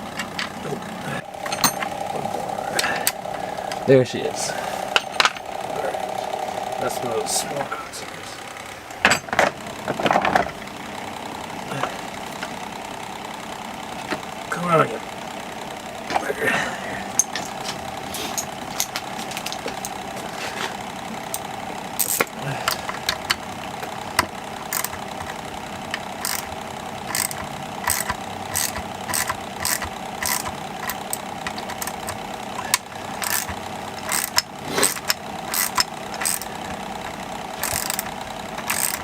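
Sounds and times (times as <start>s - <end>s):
steady background hum: 0.0s - 39.0s
tools clicking and tapping: 27.1s - 32.2s.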